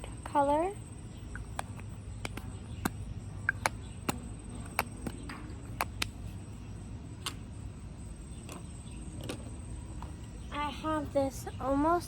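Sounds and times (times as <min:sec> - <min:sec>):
plastic tubes and caps clicking: 0:01.3 - 0:06.2.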